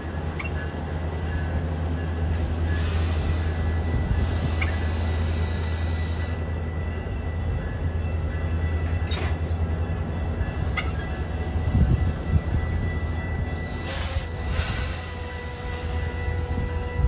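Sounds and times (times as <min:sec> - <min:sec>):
train coaches rumbling past: 0:00.0 - 0:17.0
train wheel clicks: 0:04.2 - 0:05.6, 0:08.7 - 0:09.6.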